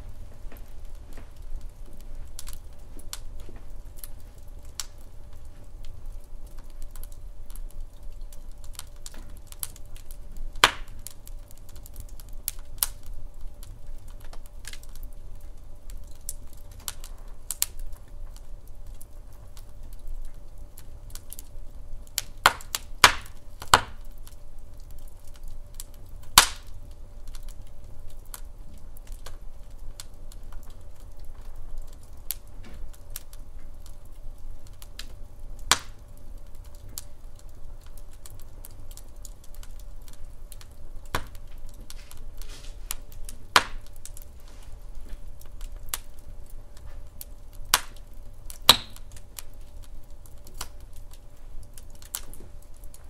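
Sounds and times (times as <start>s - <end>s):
fire rumbling: 0.0s - 53.0s
logs crackling and popping: 0.0s - 53.0s.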